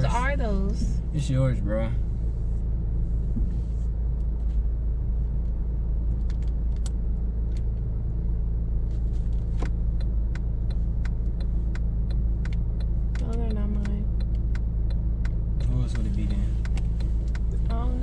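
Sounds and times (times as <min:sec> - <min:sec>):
car cabin rumble: 0:00.0 - 0:18.0
light clicks and ticks: 0:09.6 - 0:17.8.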